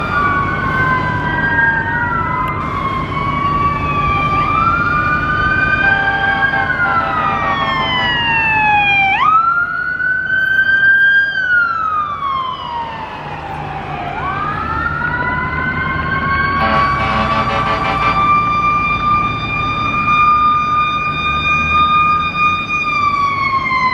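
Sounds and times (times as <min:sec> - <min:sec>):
mechanical siren wailing: 0:00.0 - 0:23.9
second siren wailing: 0:00.0 - 0:23.9
steady horn-like tone: 0:16.6 - 0:18.3.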